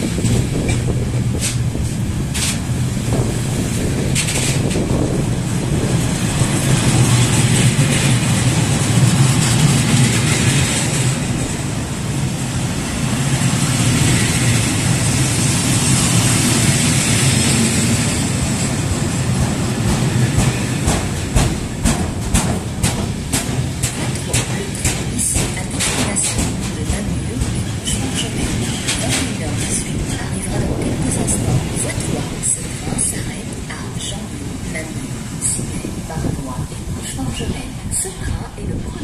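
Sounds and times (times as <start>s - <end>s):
wheels clicking over rail joints: 0.0s - 11.7s, 18.8s - 33.6s
steel wheels rumbling on rails: 0.0s - 39.0s.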